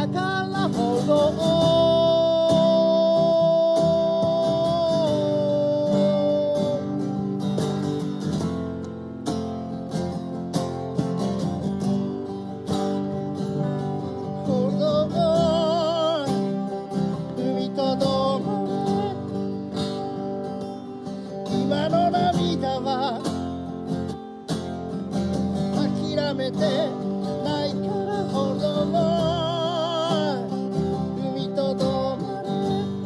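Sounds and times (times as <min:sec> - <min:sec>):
person singing: 0:00.0 - 0:07.4, 0:14.3 - 0:19.7, 0:21.3 - 0:23.5, 0:25.7 - 0:33.0
acoustic guitar strummed: 0:00.0 - 0:33.0.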